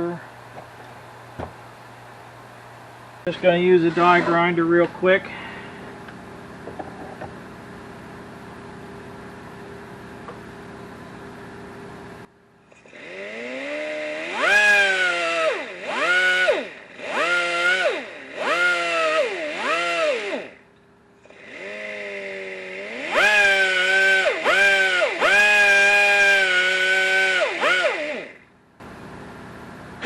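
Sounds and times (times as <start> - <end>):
die grinder whining: 12.7 - 20.6, 21.2 - 29.0.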